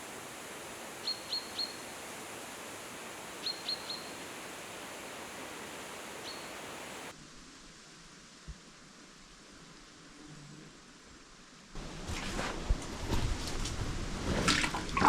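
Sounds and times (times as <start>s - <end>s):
steady outdoor hiss: 0.0s - 15.0s
small bird chirping: 0.9s - 7.1s.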